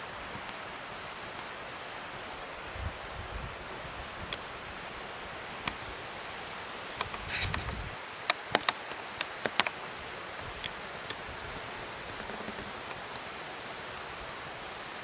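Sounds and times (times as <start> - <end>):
hiss of flames: 0.0 - 15.0
fire pops and snaps: 5.4 - 14.8.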